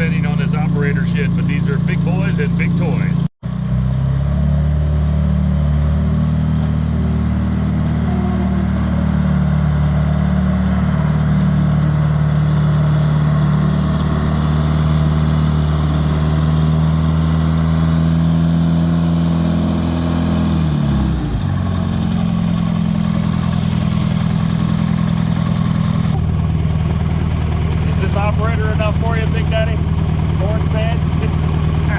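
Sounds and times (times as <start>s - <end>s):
diesel engine running: 0.0s - 31.9s.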